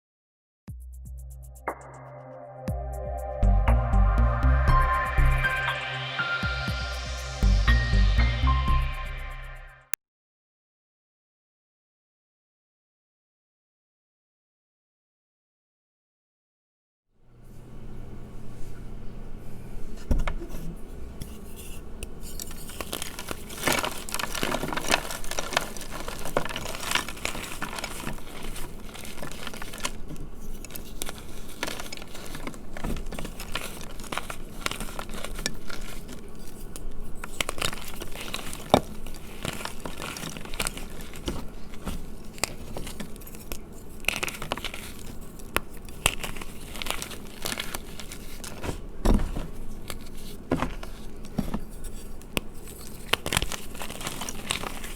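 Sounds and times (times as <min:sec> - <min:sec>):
chalk crunching and crackling: 0:20.9 - 0:54.9.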